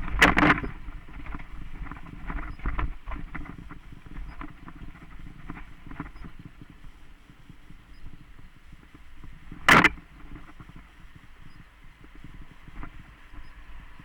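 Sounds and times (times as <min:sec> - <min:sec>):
mountain bike rattling on dirt trail: 0:00.0 - 0:06.7.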